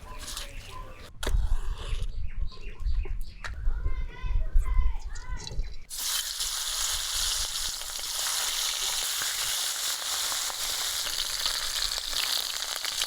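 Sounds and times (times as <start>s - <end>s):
fish frying in hot oil: 5.9s - 13.0s.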